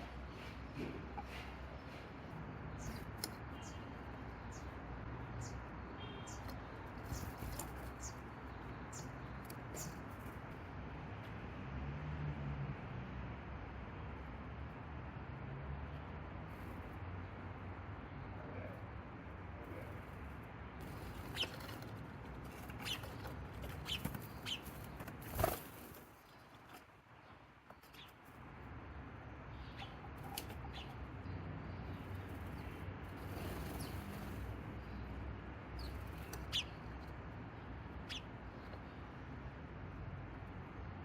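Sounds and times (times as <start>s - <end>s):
small birds chirping: 0.0s - 10.7s, 17.2s - 39.3s
bird wings fluttering: 20.8s - 26.8s.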